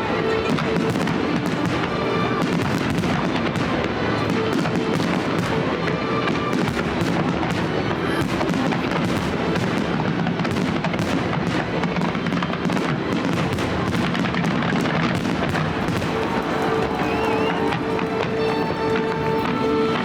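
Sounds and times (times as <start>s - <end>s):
fireworks crackling bursts: 0.0s - 20.0s.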